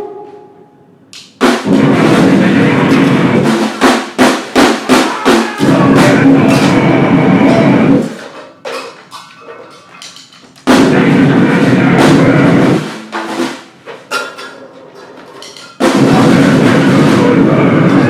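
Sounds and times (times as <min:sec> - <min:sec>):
harsh noise and drums: 0:01.4 - 0:08.3, 0:10.6 - 0:14.0, 0:15.8 - 0:18.0.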